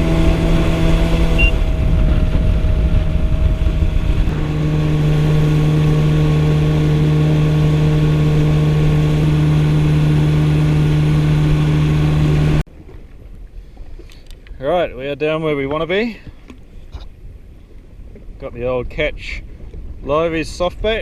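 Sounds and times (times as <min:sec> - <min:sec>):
jet ski engine running: 0:00.0 - 0:14.1.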